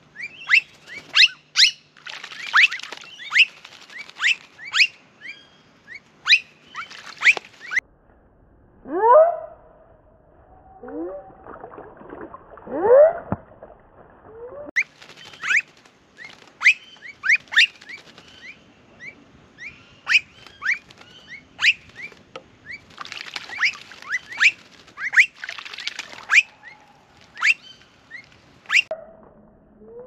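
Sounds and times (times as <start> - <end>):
birds whistling calls: 0.2 - 7.8, 16.2 - 22.8
bird splashing in water: 0.5 - 5.0, 6.7 - 7.8, 11.4 - 18.6, 20.1 - 28.9.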